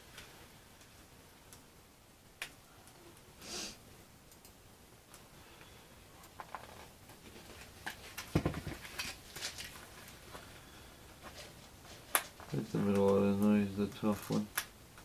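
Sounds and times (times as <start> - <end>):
short hissing rustle: 3.4 - 3.8.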